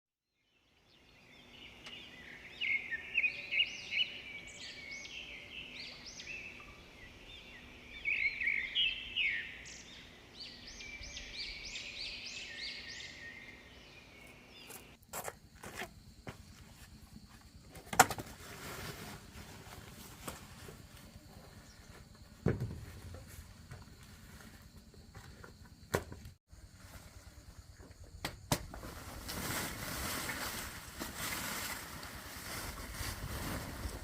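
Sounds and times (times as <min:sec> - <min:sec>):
songbirds singing and chirping: 0:00.4 - 0:15.0, 0:21.0 - 0:24.1.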